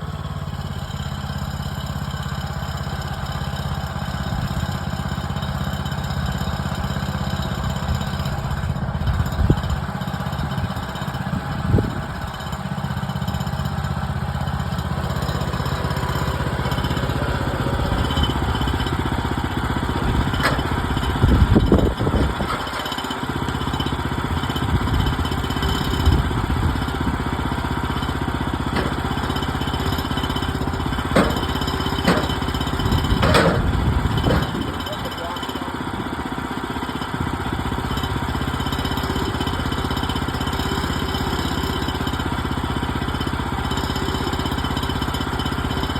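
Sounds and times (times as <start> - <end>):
gas engine running: 0.0 - 45.9
sharp knocks and clatters: 19.7 - 23.2, 28.6 - 35.3.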